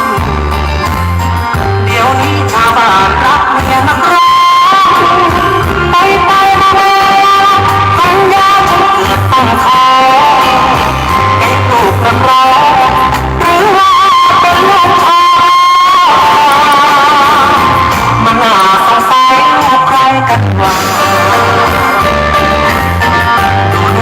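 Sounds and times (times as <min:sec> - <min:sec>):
electric guitar: 0:00.0 - 0:24.0
person singing: 0:00.0 - 0:24.0
heavy bass pulsing: 0:05.0 - 0:13.7, 0:16.4 - 0:24.0.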